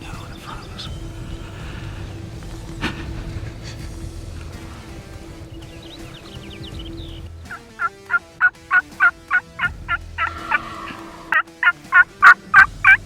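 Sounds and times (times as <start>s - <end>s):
turkey yelping: 7.5s - 13.0s.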